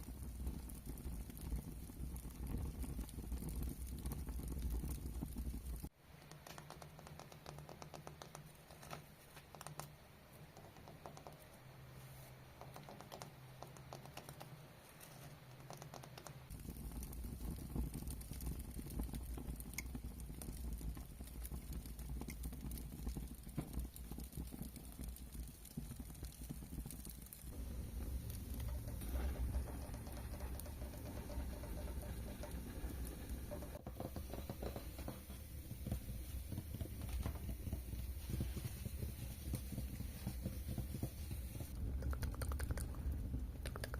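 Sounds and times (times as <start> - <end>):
fast light tapping: 12.5 - 43.9
low rumble: 27.5 - 34.7.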